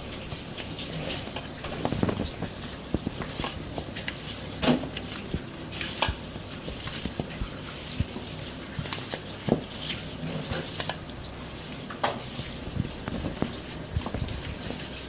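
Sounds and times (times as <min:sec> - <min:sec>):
pots and pans clinking: 0:00.0 - 0:11.1.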